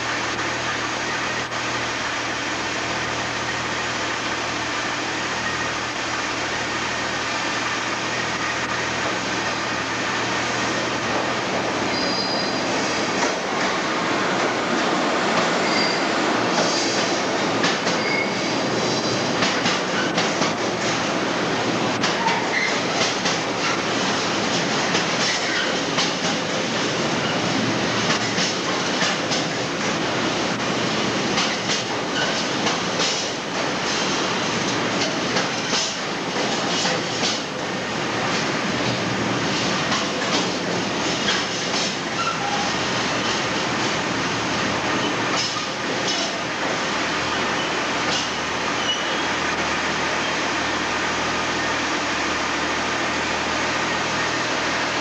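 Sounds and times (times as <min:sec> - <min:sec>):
train wheels clattering: 0:10.7 - 0:21.2, 0:21.9 - 0:30.0, 0:30.8 - 0:44.0, 0:44.9 - 0:46.8, 0:47.5 - 0:49.2
brief wheel squeals: 0:11.9 - 0:12.8, 0:15.6 - 0:17.0, 0:17.8 - 0:18.6, 0:22.2 - 0:22.9, 0:42.2 - 0:42.8, 0:47.5 - 0:49.3.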